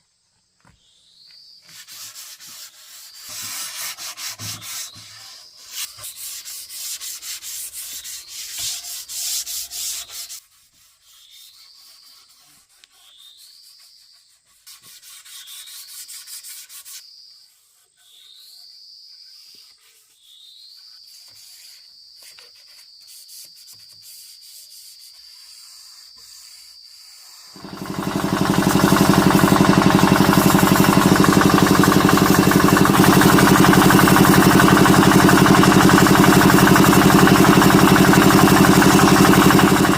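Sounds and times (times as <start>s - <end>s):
wood sanded by hand: 1.6s - 17.8s, 19.3s - 20.2s, 20.9s - 39.9s
loud motor running: 27.6s - 39.9s.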